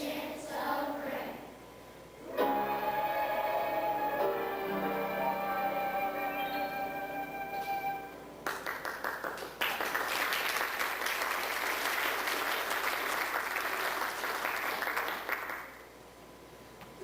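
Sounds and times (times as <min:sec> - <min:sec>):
audience applauding: 0:08.4 - 0:15.8.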